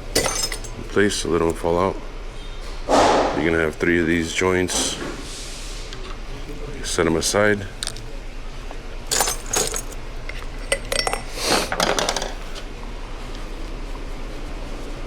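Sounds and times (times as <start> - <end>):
metal parts clinking: 0.0 - 1.6, 9.1 - 12.6
low shop hum: 0.0 - 15.0.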